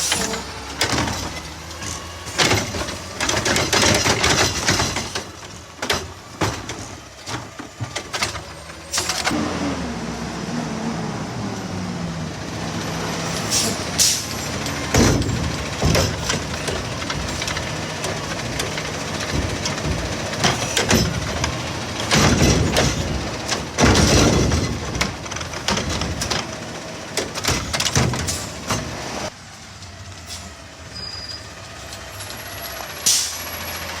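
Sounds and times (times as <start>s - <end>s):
metal bangs and clatters: 0.0s - 9.4s, 13.2s - 29.4s
garbage truck engine under load: 0.0s - 34.0s
bin slamming against hopper: 13.4s - 29.0s.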